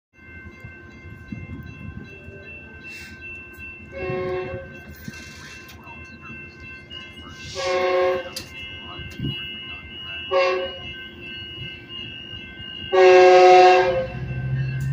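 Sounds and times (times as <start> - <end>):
train rumbling at platform: 0.2 - 14.9.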